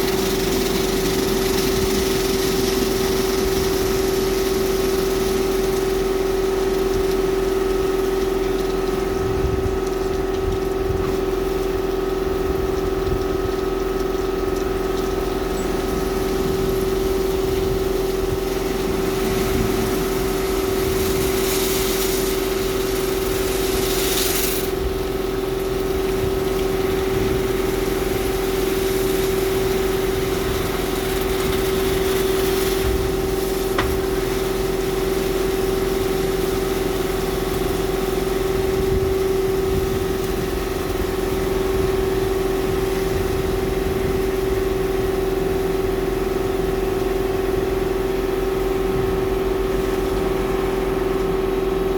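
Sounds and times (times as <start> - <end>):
car wash machinery humming: 0.0 - 51.9
hiss: 15.6 - 46.5.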